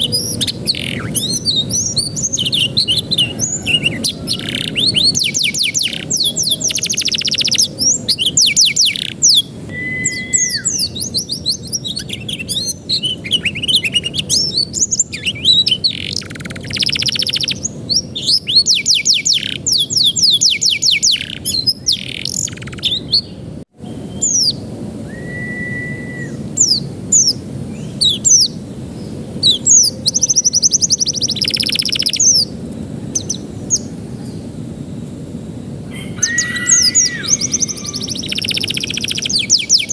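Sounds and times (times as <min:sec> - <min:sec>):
canary singing trills: 0:00.0 - 0:35.1, 0:35.9 - 0:39.9
low steady background noise: 0:00.0 - 0:39.9.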